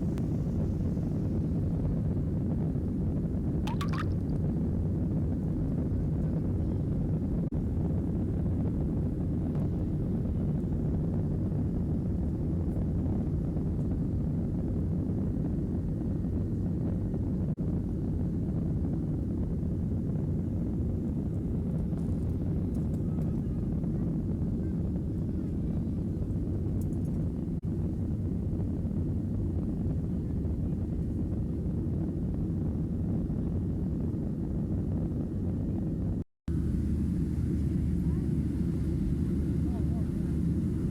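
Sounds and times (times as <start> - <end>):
airliner engines rumbling: 0.0 - 40.9
jet engines rumbling: 35.2 - 40.9.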